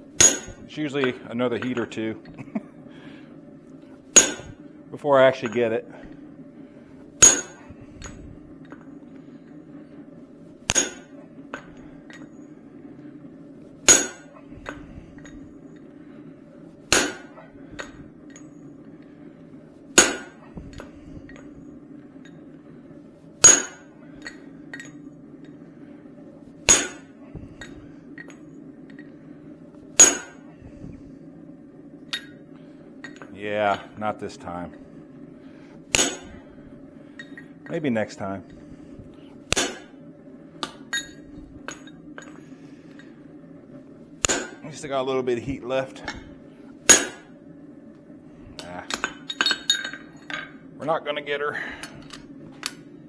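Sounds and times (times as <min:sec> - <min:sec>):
steady low hum: 0:00.0 - 0:53.0
hammer blows on steel punch: 0:00.2 - 0:00.8, 0:04.1 - 0:04.6, 0:07.2 - 0:08.2, 0:10.7 - 0:11.8, 0:30.0 - 0:30.5, 0:35.9 - 0:36.6, 0:44.2 - 0:44.8.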